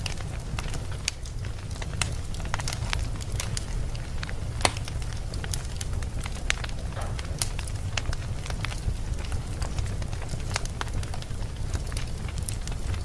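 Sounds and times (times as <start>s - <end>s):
low rumble of flames: 0.0s - 13.0s
wood fire crackling and popping: 0.0s - 13.0s.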